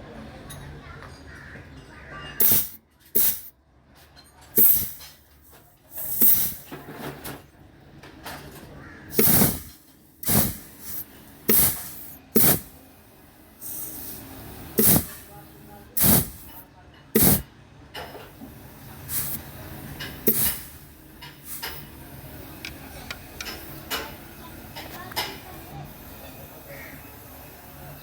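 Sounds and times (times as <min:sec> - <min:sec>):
compressed air blasts: 0:02.4 - 0:03.5, 0:04.6 - 0:06.8, 0:09.1 - 0:16.6, 0:17.2 - 0:17.5, 0:18.3 - 0:28.0.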